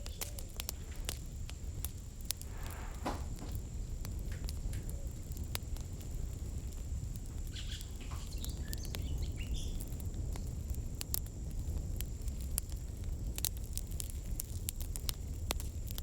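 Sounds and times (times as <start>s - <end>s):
campfire crackling: 0.0s - 16.0s
short chirping calls: 7.5s - 9.8s.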